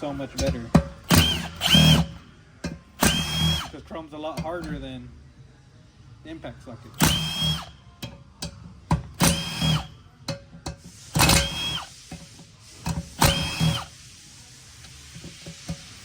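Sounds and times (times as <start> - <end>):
impact tool motor whine: 1.0 - 2.2, 3.0 - 3.8, 7.0 - 7.7, 9.2 - 9.9, 11.1 - 11.9, 12.8 - 13.9.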